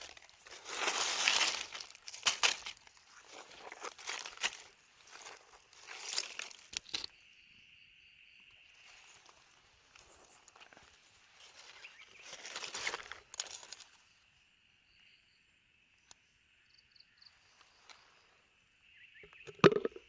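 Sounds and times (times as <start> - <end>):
rustling of dry vegetation: 0.0 - 7.2, 8.7 - 14.2
crickets trilling: 0.0 - 20.0.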